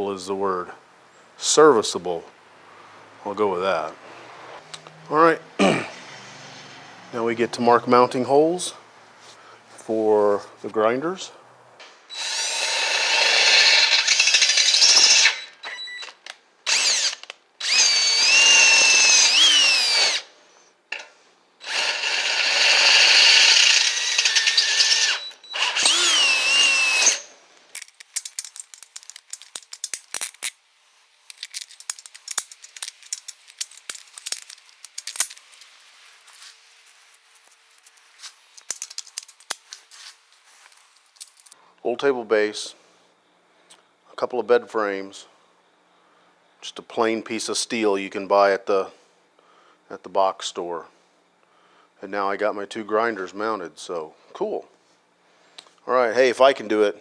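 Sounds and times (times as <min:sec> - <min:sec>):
power drill boring into steel: 0:12.1 - 0:20.3, 0:21.6 - 0:27.3
metal parts clinking: 0:25.8 - 0:41.6.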